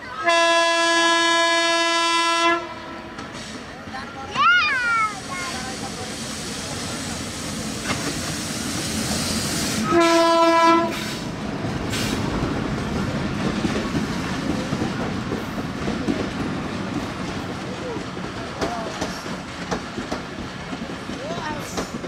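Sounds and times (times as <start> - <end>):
train horn: 0.2 - 3.2, 9.8 - 11.2
locomotive engine and wheel rumble: 1.0 - 22.0.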